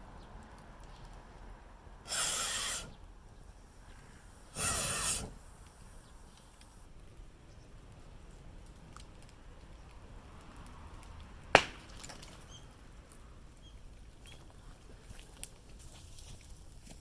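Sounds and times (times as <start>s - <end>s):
faint ticks and crackles: 5.3s - 11.4s, 12.0s - 17.0s
dry bamboo cracking: 8.6s - 13.2s, 14.2s - 17.0s.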